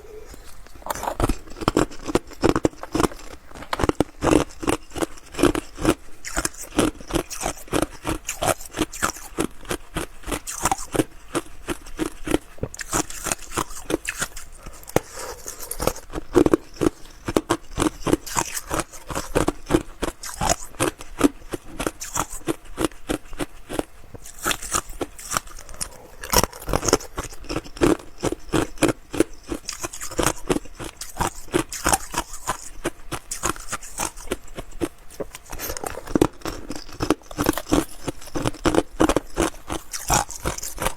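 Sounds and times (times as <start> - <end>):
chewing ice crunching: 0.1 - 40.9.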